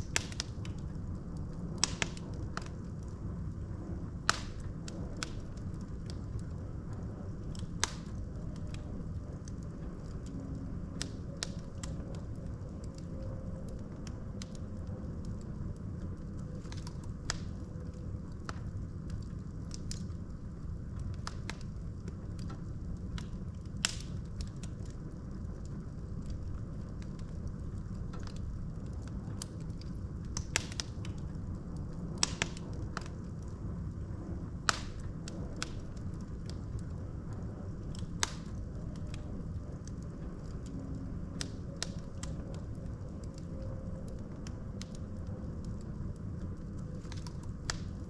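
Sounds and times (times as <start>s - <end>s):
logs crackling and popping: 0.0s - 48.0s
low rumble of flames: 0.0s - 48.0s.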